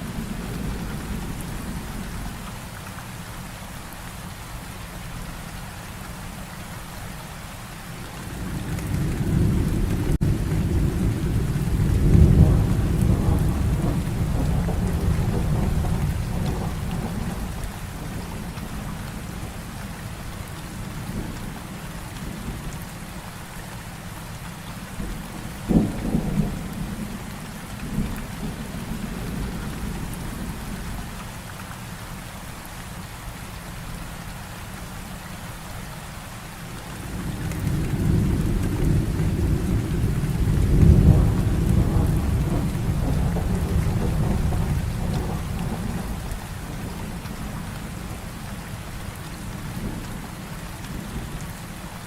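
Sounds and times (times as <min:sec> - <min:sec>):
heavy rain falling: 0:00.0 - 0:52.0
thunder rumbling: 0:08.3 - 0:19.8, 0:25.0 - 0:31.0, 0:37.0 - 0:51.4.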